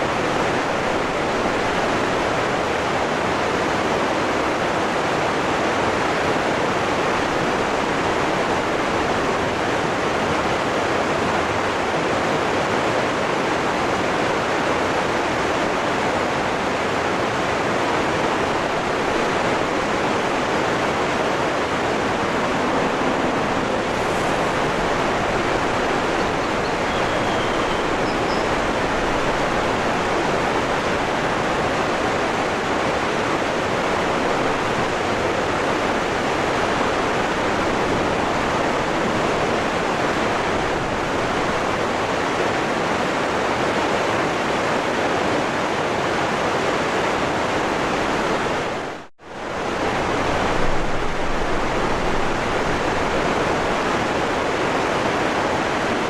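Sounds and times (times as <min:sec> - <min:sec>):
waterfall roaring: 0:00.0 - 0:56.0
faint high chirps: 0:26.1 - 0:28.8.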